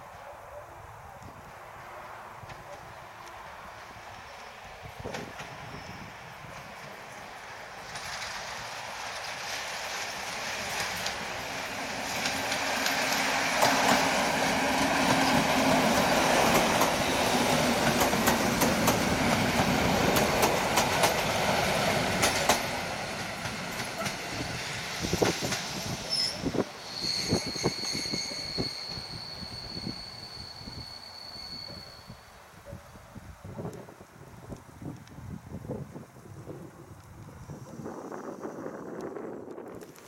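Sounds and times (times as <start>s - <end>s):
train passing rumble: 0.9s - 32.7s.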